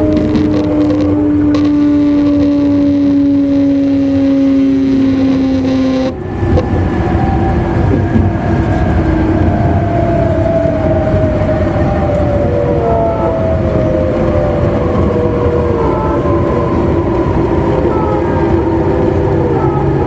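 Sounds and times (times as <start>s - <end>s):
electric train motor whine: 0.0s - 20.0s
wheels rumbling on rails: 0.0s - 20.0s.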